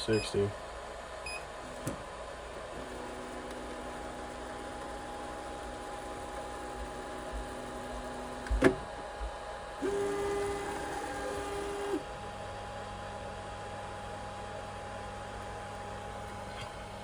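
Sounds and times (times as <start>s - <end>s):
printer fan hum: 0.0s - 17.0s
motor whine: 1.3s - 17.0s.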